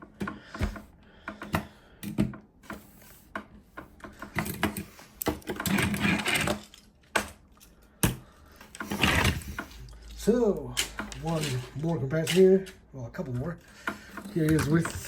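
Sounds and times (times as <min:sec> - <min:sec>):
plastic toy figures clicking: 0:08.6 - 0:15.0.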